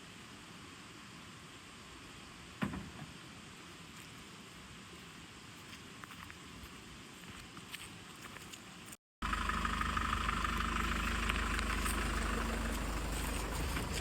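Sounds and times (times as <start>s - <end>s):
noisy hiss: 0.0s - 7.2s
car engine running: 9.2s - 14.0s.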